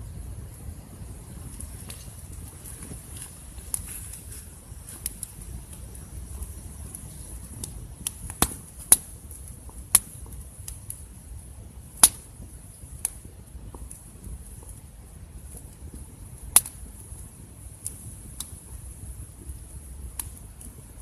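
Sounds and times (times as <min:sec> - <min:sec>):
campfire crackling and popping: 0:00.0 - 0:21.0
faint steady hiss: 0:00.0 - 0:21.0.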